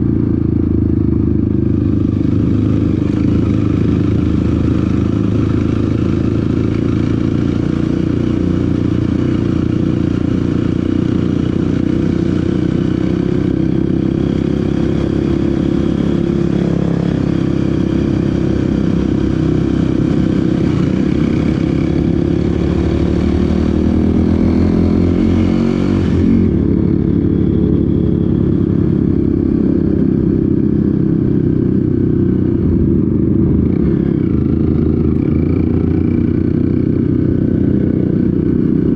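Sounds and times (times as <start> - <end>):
off-road vehicle engine running: 0.0 - 38.9.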